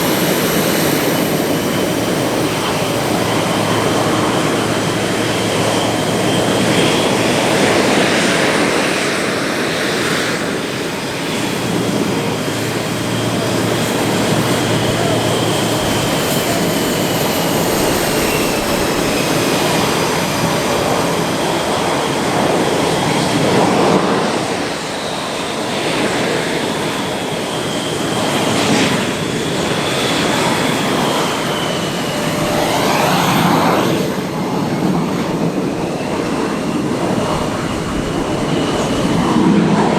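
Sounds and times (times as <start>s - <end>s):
high turbine whine: 0.0s - 39.9s
jet engines roaring: 0.0s - 39.9s.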